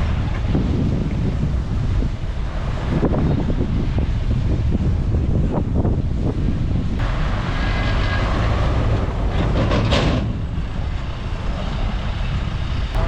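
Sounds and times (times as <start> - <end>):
diesel machinery engine rumble: 0.0 - 13.0
rushing scraping noise: 7.0 - 13.0.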